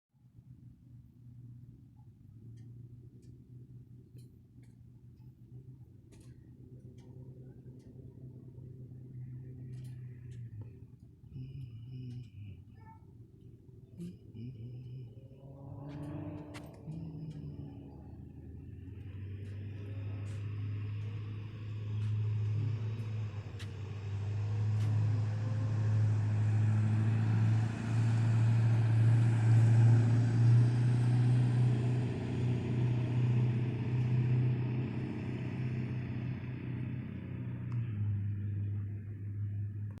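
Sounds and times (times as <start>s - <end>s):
low engine hum: 0.2s - 40.0s
faint clicks: 15.8s - 18.1s.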